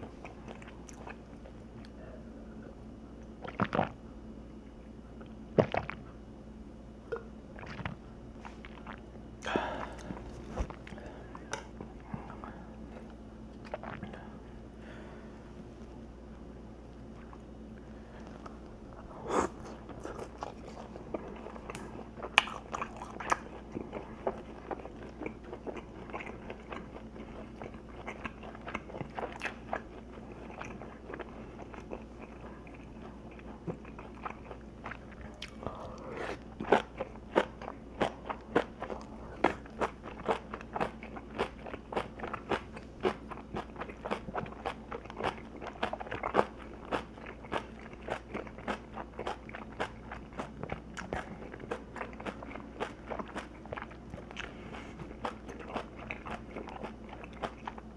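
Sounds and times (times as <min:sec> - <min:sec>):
chewing crunchy food: 0:00.0 - 0:02.2, 0:03.1 - 0:04.0, 0:07.1 - 0:14.3, 0:16.9 - 0:57.9.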